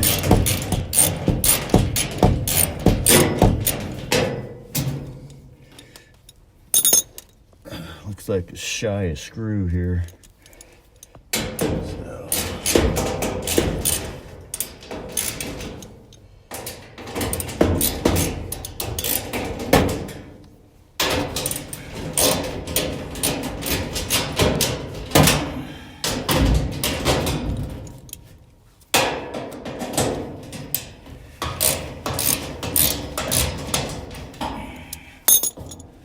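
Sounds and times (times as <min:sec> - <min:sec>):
metal panel knocking and clattering: 0:00.0 - 0:05.5, 0:11.3 - 0:20.4, 0:21.0 - 0:28.1, 0:28.9 - 0:34.6.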